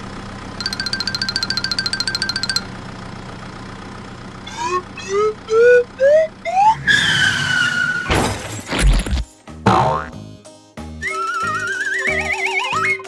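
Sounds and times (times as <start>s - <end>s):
cartoon rising whistle glides: 4.4s - 8.1s, 11.0s - 13.0s.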